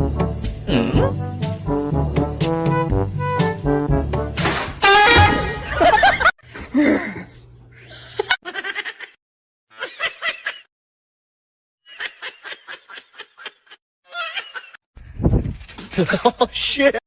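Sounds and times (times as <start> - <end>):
person giggling: 5.7 - 9.2.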